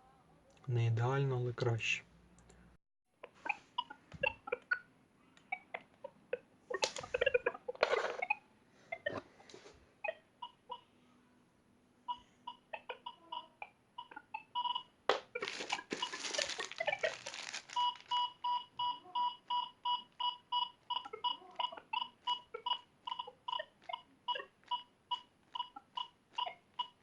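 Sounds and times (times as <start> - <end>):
rustling crackling noise: 15.3 - 18.5.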